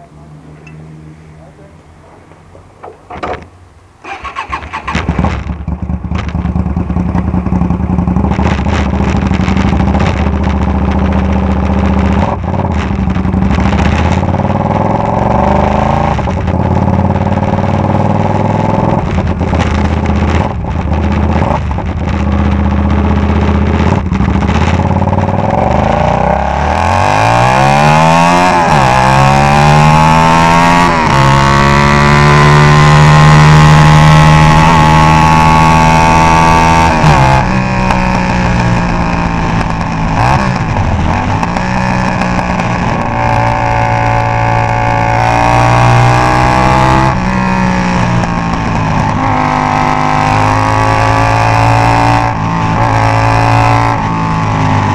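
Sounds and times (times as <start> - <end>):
motorcycle engine starting: 2.8 - 54.9
motorcycle engine revving: 4.0 - 54.9
motorcycle idling loudly: 5.7 - 8.4.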